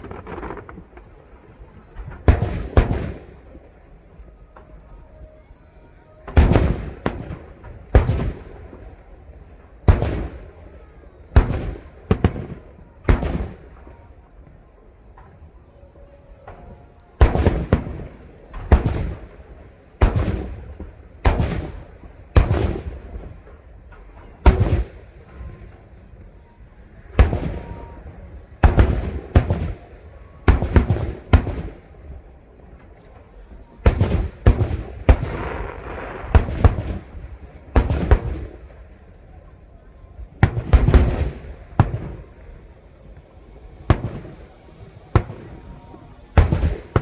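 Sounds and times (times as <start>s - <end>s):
firework shells bursting: 0.0s - 5.2s, 16.2s - 47.0s.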